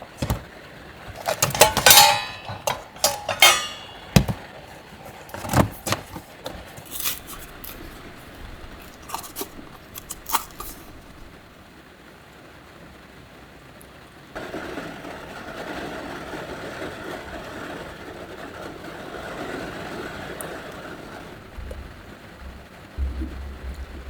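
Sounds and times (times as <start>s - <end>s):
dishes and utensils clattering: 0.0s - 0.5s, 1.1s - 11.0s
ringing clinks: 1.1s - 4.4s.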